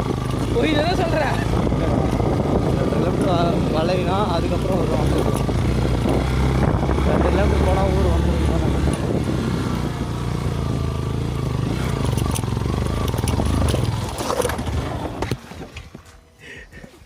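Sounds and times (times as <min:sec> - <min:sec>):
motorcycle engine running: 0:00.0 - 0:16.4.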